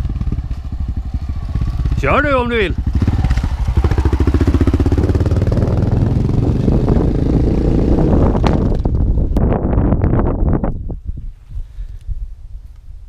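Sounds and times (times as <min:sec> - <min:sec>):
single-cylinder motorcycle engine running: 0:00.0 - 0:09.2.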